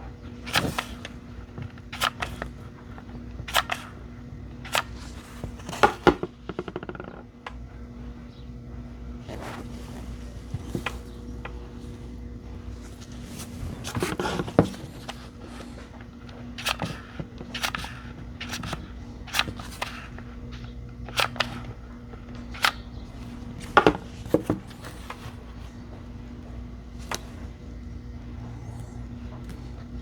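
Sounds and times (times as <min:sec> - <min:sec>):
steady low hum: 0:00.0 - 0:30.0
battery cells clicking and knocking: 0:00.2 - 0:07.7, 0:12.8 - 0:25.6.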